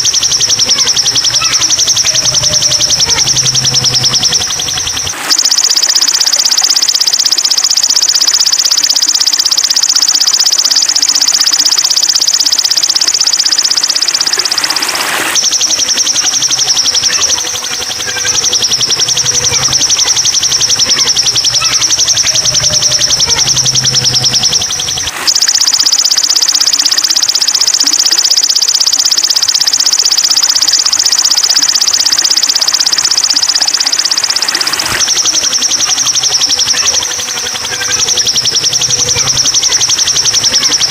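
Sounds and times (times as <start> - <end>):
bird buzzing trill: 0.0 - 40.9.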